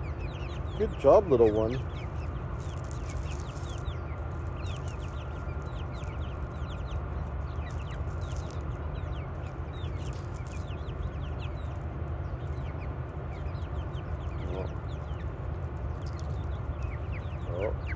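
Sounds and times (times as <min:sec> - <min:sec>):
chickens chirping and clucking: 0:00.0 - 0:17.9.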